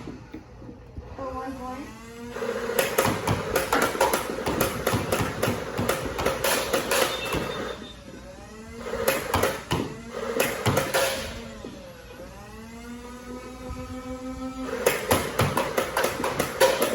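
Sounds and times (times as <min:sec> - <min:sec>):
steady motor hum: 0:00.0 - 0:16.9
motor whirring: 0:00.1 - 0:03.7, 0:06.8 - 0:15.7
toy blaster rapid clattering: 0:14.7 - 0:16.9.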